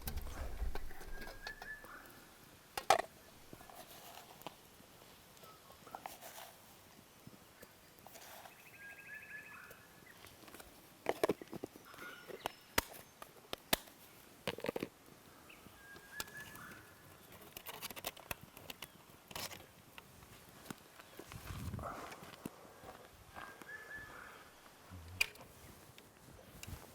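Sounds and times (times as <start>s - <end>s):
short bird calls: 0.2s - 2.4s, 23.4s - 24.6s.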